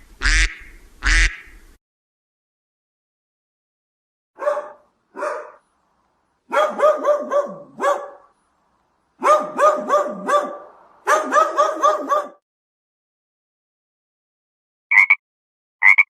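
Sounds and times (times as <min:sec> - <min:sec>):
dog barking: 0:04.4 - 0:05.7, 0:06.5 - 0:08.4, 0:09.2 - 0:12.4.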